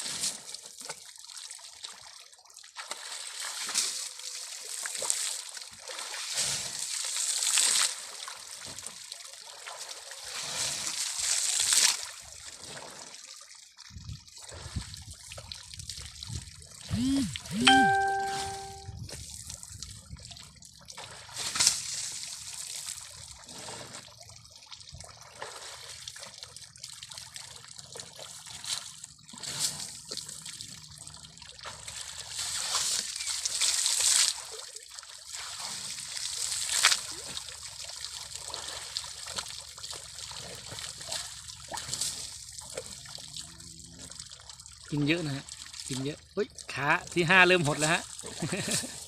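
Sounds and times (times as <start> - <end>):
water trickling and splashing: 0.0 - 16.9, 17.9 - 49.0
short whistle-like call: 16.9 - 19.0.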